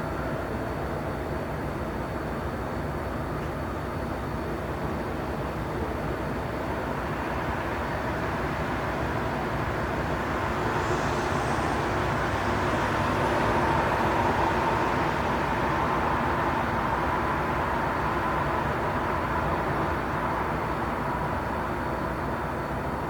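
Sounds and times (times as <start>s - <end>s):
faint steady whine: 0.0s - 23.0s
rumble of idling trains: 0.0s - 23.0s
hiss: 9.7s - 16.2s.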